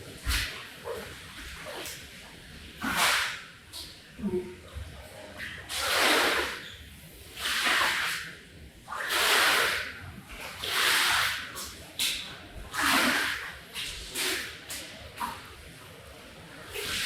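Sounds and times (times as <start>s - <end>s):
swishing strokes on soaked rug: 0.1s - 3.9s, 5.4s - 6.7s, 7.3s - 8.3s, 8.9s - 15.9s.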